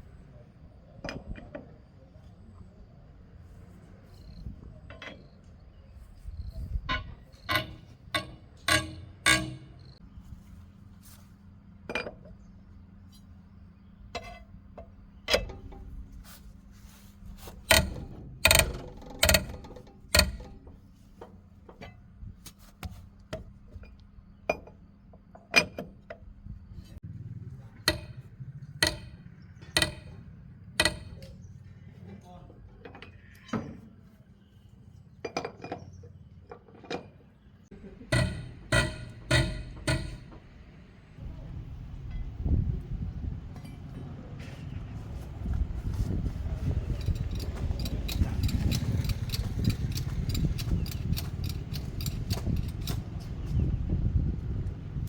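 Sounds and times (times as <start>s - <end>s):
metallic clinks of hand tools: 46.8s - 53.0s.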